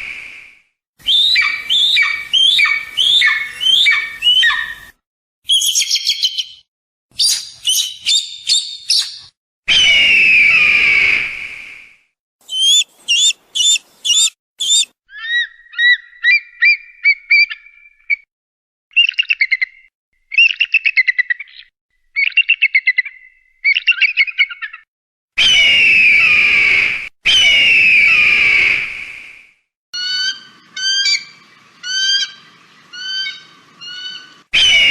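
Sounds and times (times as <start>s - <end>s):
hawk screeching: 12.5s - 14.9s
hawk chattering calls: 12.5s - 16.0s.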